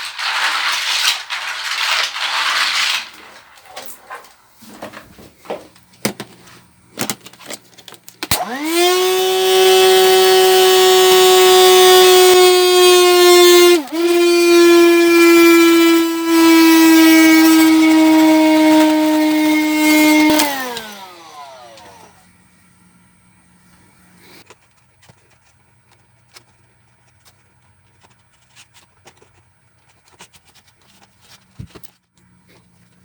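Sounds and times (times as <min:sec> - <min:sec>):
small electric motor whining: 0:08.4 - 0:22.3.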